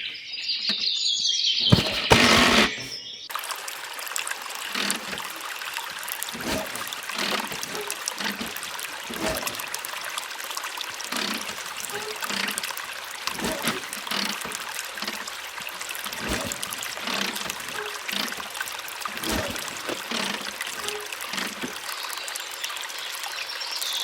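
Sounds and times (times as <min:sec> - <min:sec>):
water pouring from hand pump: 0:03.3 - 0:22.2.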